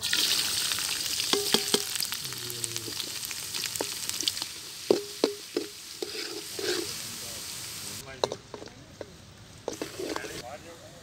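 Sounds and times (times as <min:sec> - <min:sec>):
vegetables sizzling in hot oil: 0:00.0 - 0:08.6, 0:09.6 - 0:10.4
metal ladle clinking against pan: 0:01.3 - 0:02.1.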